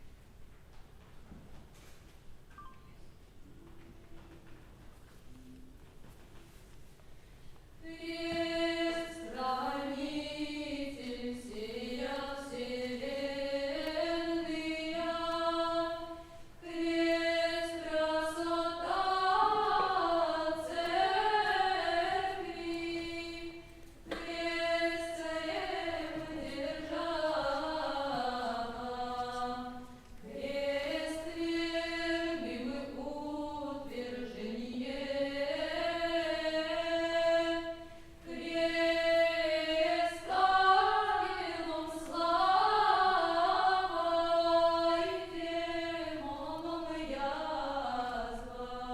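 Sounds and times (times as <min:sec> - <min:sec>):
choir chanting over drone: 0:30.3 - 0:48.9.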